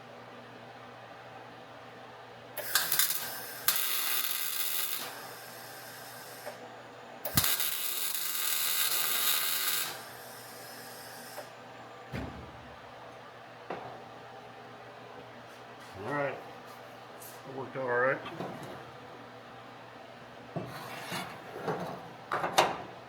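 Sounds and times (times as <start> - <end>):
welding crackling sizzle: 2.6 - 6.6, 7.2 - 11.5.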